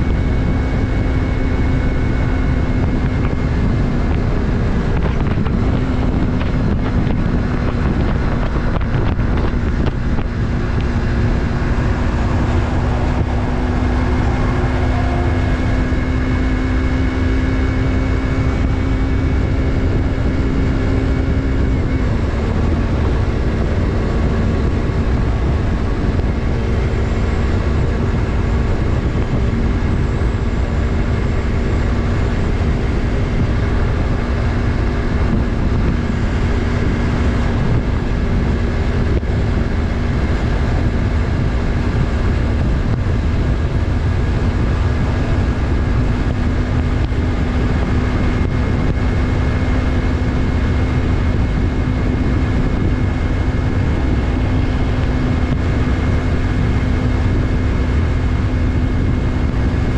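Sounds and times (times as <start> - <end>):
motorcycle engine running: 0.0 - 59.9
road noise: 0.0 - 59.9
wind noise: 0.0 - 59.9.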